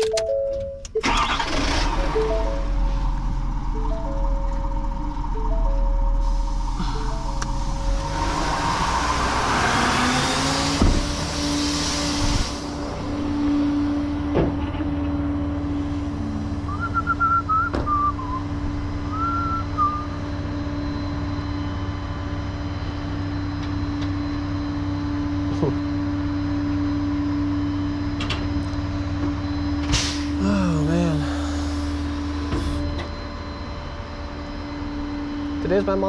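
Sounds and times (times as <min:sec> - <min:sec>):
truck engine running: 0:00.0 - 0:36.0
chirping whistle: 0:16.6 - 0:20.3.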